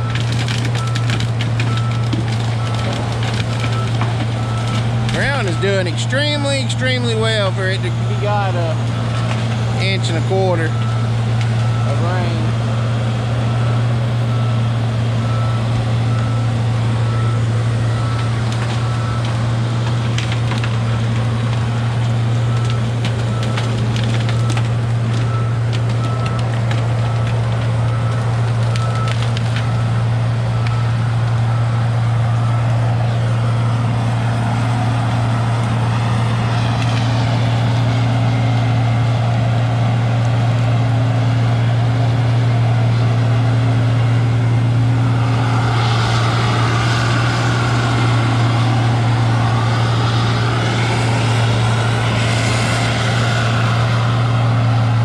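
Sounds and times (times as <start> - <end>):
heavy diesel machine running: 0.0 - 55.0
sharp cracks and snaps: 0.1 - 5.2, 18.2 - 29.8, 36.7 - 37.2.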